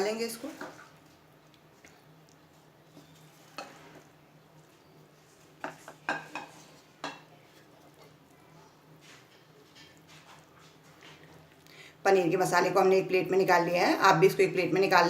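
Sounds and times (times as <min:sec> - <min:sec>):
spatula scraping a pan: 0:03.0 - 0:04.2.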